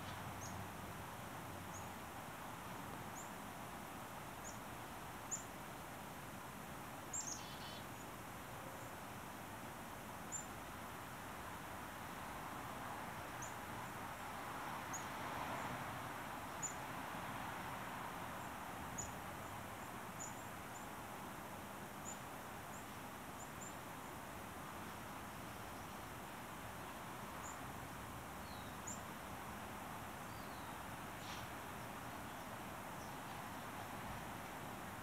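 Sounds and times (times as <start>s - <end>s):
songbird call notes: 0.0s - 0.6s, 5.3s - 5.5s, 7.1s - 9.0s, 10.3s - 10.6s, 19.0s - 21.0s, 22.0s - 23.9s, 28.4s - 29.1s, 30.2s - 31.5s.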